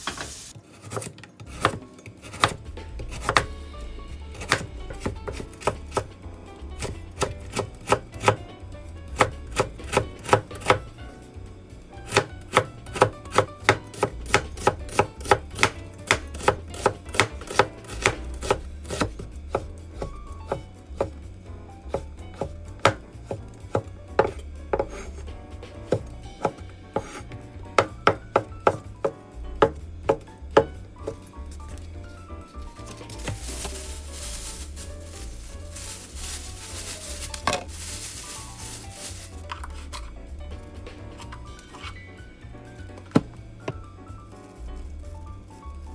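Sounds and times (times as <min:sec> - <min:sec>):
knife chopping on cutting board: 0:00.0 - 0:03.6, 0:04.3 - 0:06.1, 0:06.8 - 0:08.4, 0:09.1 - 0:10.8, 0:12.0 - 0:21.2, 0:21.9 - 0:31.9, 0:32.8 - 0:40.0.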